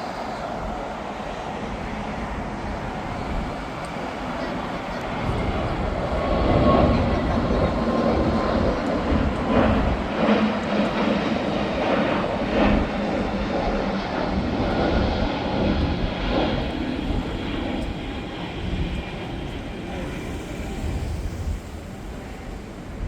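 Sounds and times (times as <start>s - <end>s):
jet airliner passing: 0.0s - 23.0s.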